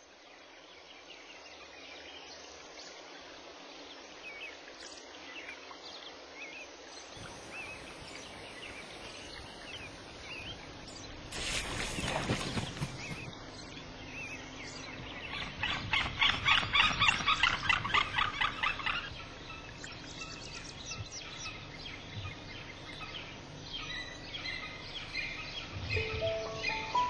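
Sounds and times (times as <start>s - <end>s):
bird calling sharp notes: 26.0s - 27.0s.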